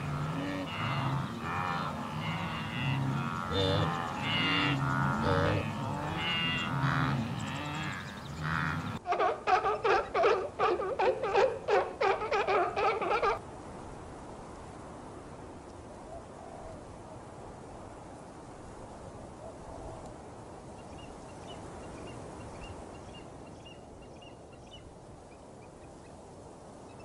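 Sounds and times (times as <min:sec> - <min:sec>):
seal calls: 0:00.0 - 0:13.4
wildebeest herd grunting: 0:00.0 - 0:13.4.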